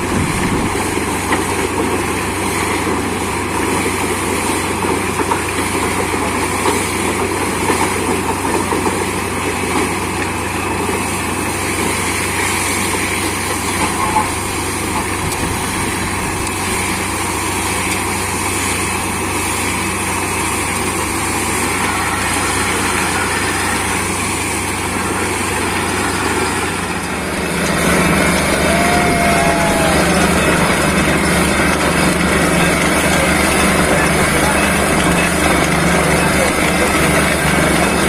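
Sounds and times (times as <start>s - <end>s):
air compressor running: 0.0s - 38.0s
drilling rig running: 0.0s - 38.0s
low engine hum: 10.9s - 38.0s.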